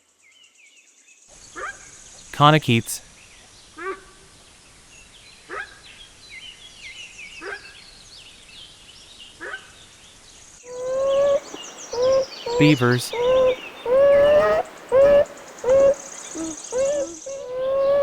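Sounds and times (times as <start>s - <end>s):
faint bird chirps: 10.7s - 18.0s
wildebeest calling: 10.7s - 18.0s.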